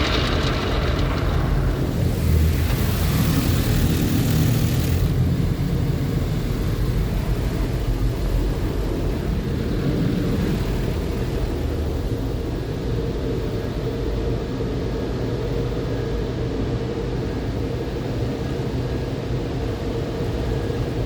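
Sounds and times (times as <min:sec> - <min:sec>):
car wash machinery roaring: 0:00.0 - 0:15.1.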